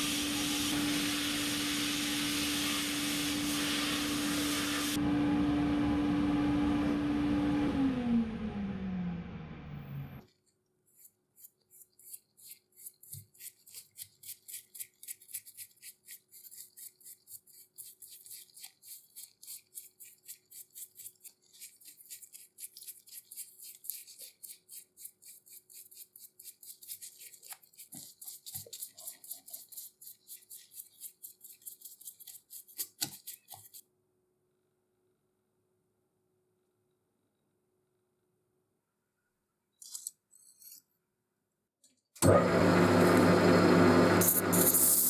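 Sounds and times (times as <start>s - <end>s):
hand tool scraping a workpiece: 10.9s - 33.8s.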